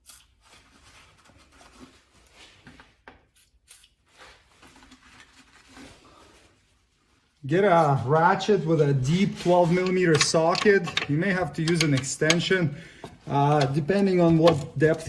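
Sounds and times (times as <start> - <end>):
soft handling rubs: 5.8 - 15.0.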